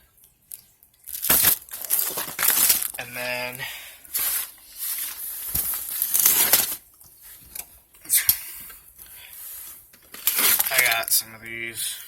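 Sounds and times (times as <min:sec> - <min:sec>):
plastic wrapping crinkling: 0:00.5 - 0:07.7, 0:09.4 - 0:11.3.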